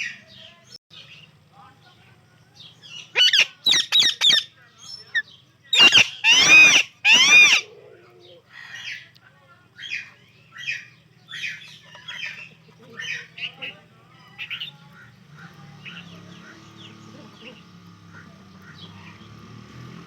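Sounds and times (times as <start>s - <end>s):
parrots screeching and calling: 2.8s - 9.1s, 9.8s - 16.8s.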